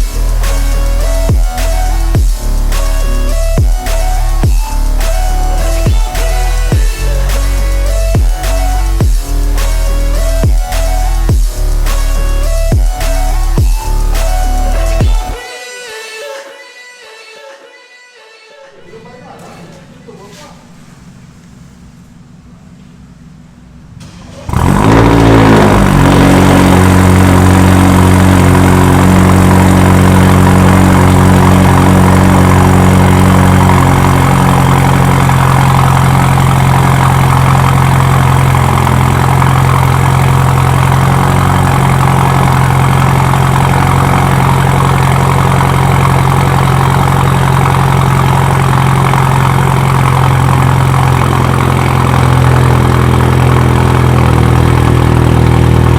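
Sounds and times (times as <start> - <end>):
car engine starting and idling: 0.0 - 15.4, 18.8 - 55.9.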